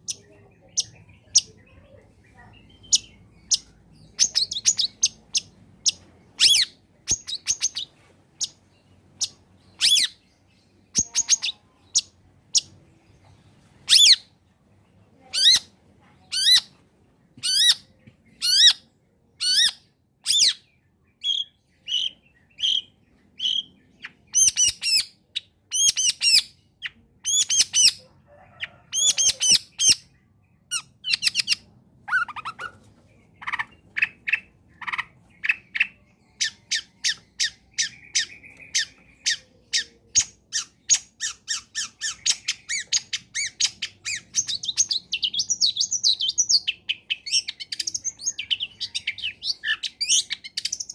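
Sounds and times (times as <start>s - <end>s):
bird harsh chattering calls: 30.7s - 50.9s.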